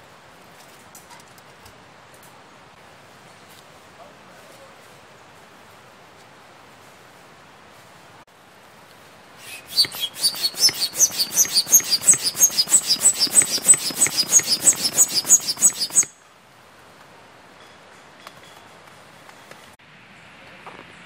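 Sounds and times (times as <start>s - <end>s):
bird chirping rapidly: 9.4s - 16.2s.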